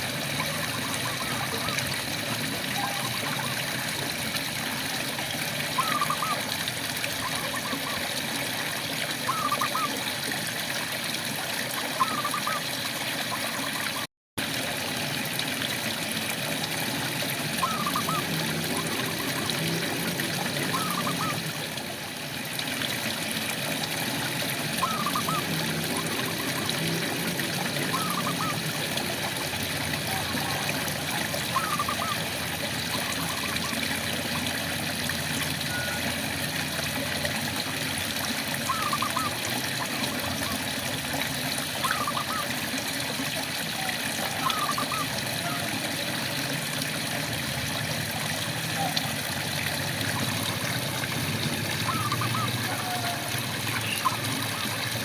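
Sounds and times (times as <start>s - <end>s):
frog calling: 5.8s - 6.5s, 9.3s - 10.0s, 11.8s - 12.7s, 17.6s - 19.8s, 20.5s - 21.5s, 24.8s - 28.8s, 30.0s - 34.0s, 38.7s - 40.6s, 41.8s - 42.5s, 43.8s - 45.8s, 51.7s - 54.9s.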